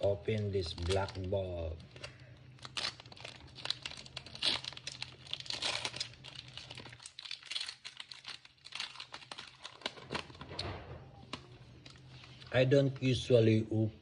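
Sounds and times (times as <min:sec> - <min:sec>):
foil wrapper crinkling and tearing: 0:00.0 - 0:12.7.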